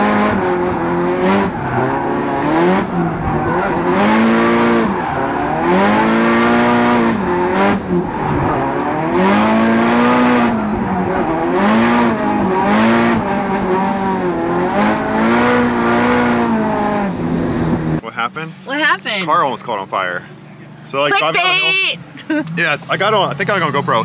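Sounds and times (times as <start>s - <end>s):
car engine revving: 0.0s - 18.0s
tyre squeal: 1.4s - 12.7s.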